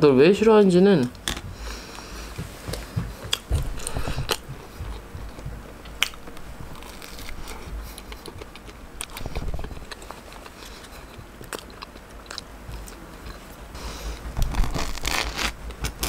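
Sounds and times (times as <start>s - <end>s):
wet chewing: 3.2s - 13.5s
bread crunching: 3.3s - 13.4s, 14.3s - 16.0s.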